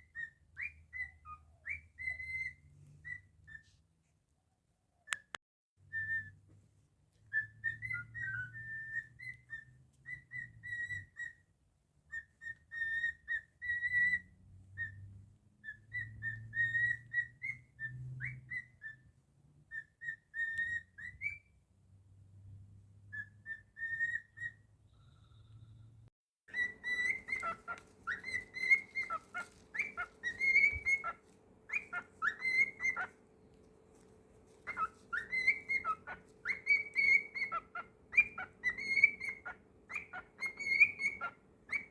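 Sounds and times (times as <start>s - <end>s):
cockatiel whistling: 0.0s - 3.7s, 5.9s - 6.4s, 7.3s - 11.4s, 12.1s - 15.0s, 15.6s - 19.1s, 19.7s - 21.5s, 23.1s - 25.7s, 26.5s - 33.2s, 34.5s - 41.9s.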